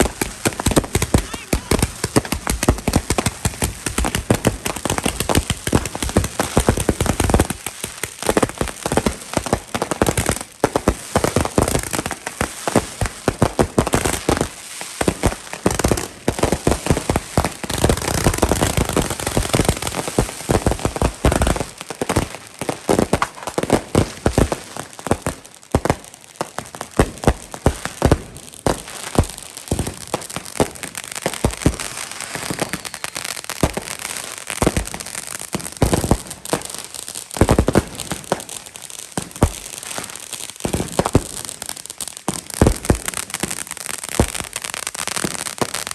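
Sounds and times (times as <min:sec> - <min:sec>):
fireworks bangs: 0:00.0 - 0:08.4
fireworks crackling: 0:00.0 - 0:45.9.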